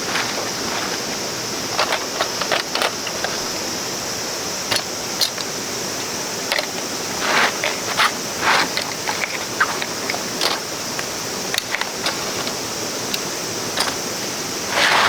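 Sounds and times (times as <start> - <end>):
cicadas droning: 0.0 - 15.0
short crunches and clicks: 6.5 - 15.0.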